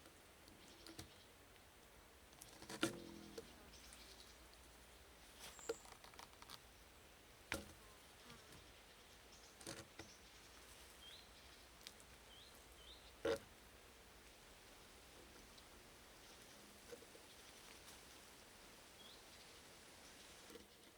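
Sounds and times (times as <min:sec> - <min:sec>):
quiet hiss: 0:00.0 - 0:20.9.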